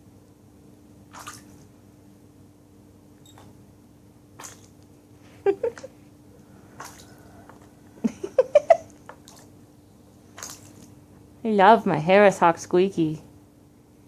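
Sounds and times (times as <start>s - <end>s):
bird splashing in water: 1.1s - 1.6s, 6.8s - 7.2s, 10.3s - 10.9s.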